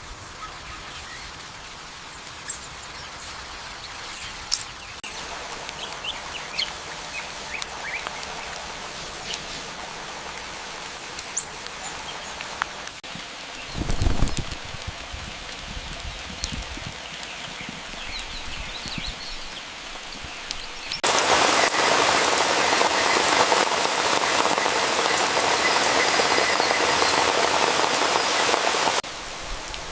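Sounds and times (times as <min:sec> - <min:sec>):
birds chirping: 0:00.0 - 0:09.8, 0:13.0 - 0:14.8, 0:15.8 - 0:29.0
steady background hiss: 0:19.2 - 0:29.9.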